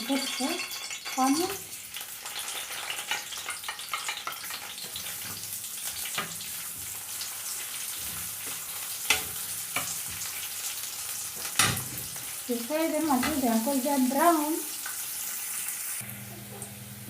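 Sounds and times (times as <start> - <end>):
onions sizzling in a pan: 0.0 - 17.0.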